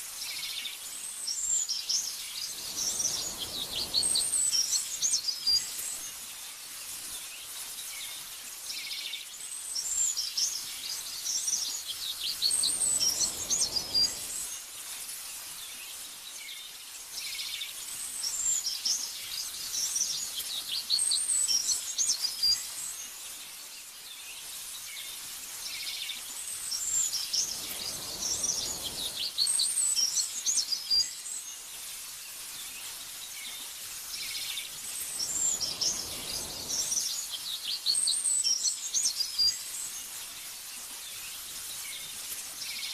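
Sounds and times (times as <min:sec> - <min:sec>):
small birds chirping: 0:00.1 - 0:42.9
wind whooshes: 0:02.5 - 0:05.1, 0:12.4 - 0:14.5, 0:27.2 - 0:29.4, 0:35.0 - 0:37.2.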